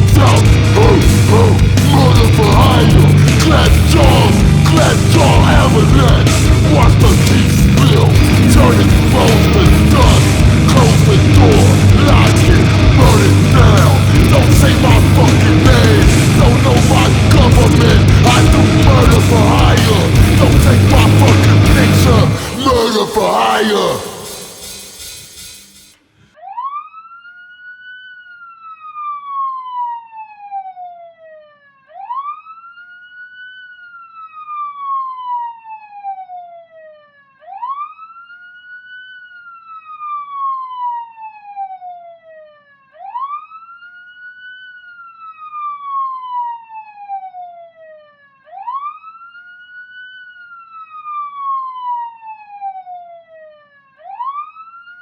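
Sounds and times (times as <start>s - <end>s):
music: 0.0s - 23.2s, 23.8s - 26.0s
wailing siren: 0.0s - 25.0s, 26.0s - 55.0s.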